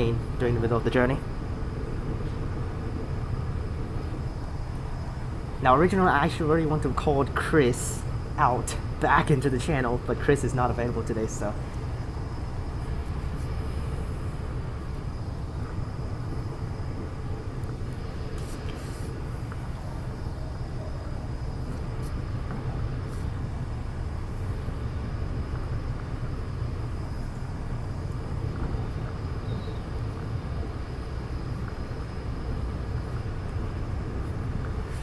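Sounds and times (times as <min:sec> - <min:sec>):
faint high whine: 0:00.0 - 0:35.0
train running low rumble: 0:00.0 - 0:35.0.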